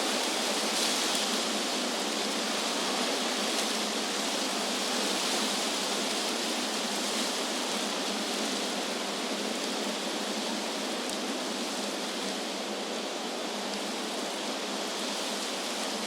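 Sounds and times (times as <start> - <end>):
wind rushing through trees: 0.0 - 16.0.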